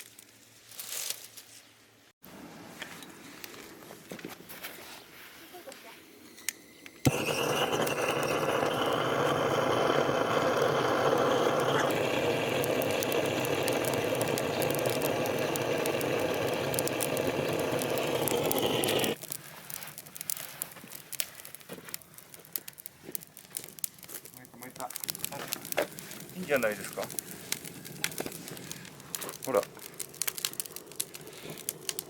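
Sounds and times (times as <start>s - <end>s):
machine whirring: 7.0s - 19.2s
faint crackling clicks: 10.4s - 32.0s.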